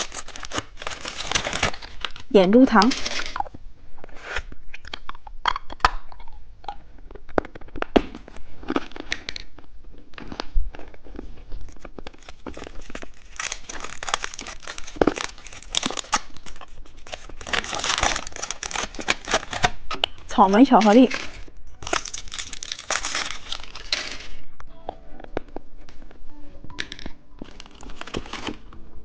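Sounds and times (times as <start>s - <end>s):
plastic wrapper crinkling and tearing: 0.0s - 3.6s, 7.0s - 24.5s, 26.8s - 28.8s.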